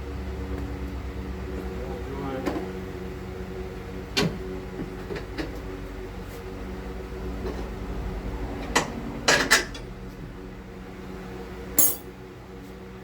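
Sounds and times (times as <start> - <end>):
steady background hum: 0.0 - 13.0
metal hand tools clinking: 11.8 - 12.0.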